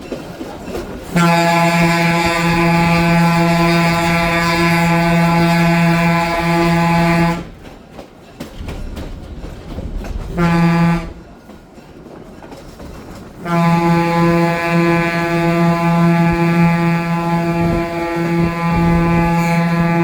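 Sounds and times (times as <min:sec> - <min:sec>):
train rumble: 0:00.0 - 0:20.0
locomotive air horn blasts: 0:01.0 - 0:07.6, 0:10.3 - 0:11.2, 0:13.4 - 0:20.0.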